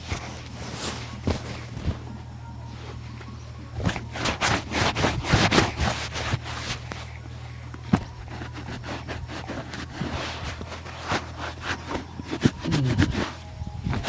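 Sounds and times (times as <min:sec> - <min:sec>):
steady low hum: 0:00.0 - 0:14.0
brush scraping a shoe: 0:04.1 - 0:07.1, 0:07.9 - 0:13.5.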